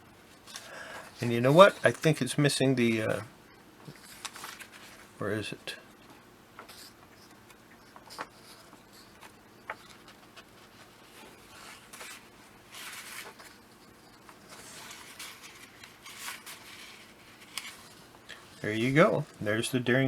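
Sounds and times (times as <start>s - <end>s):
pages rustling: 0.3s - 3.2s, 3.8s - 5.2s, 6.0s - 19.4s.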